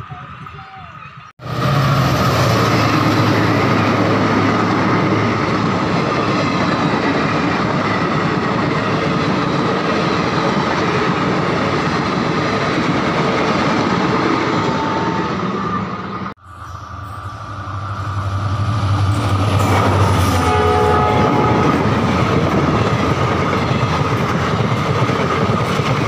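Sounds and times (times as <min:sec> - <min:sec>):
locomotive engine rumbling: 0:01.2 - 0:26.0
train wheels running over rails: 0:01.4 - 0:16.3, 0:17.8 - 0:26.0
high ringing tone: 0:16.4 - 0:21.8.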